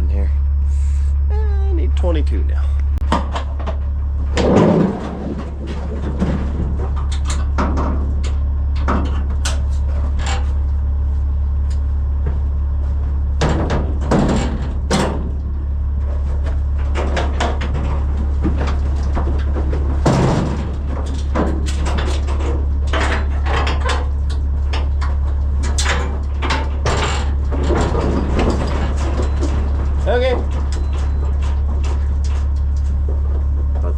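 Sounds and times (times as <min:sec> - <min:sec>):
steady low hum: 0:00.0 - 0:33.9
hooves knocking in a trailer: 0:03.0 - 0:33.9.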